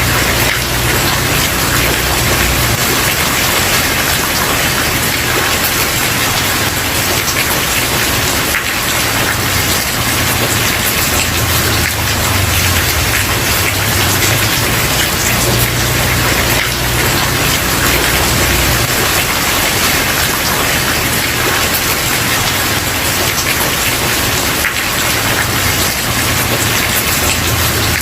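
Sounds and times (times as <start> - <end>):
rain pattering on a surface: 0.0 - 28.0.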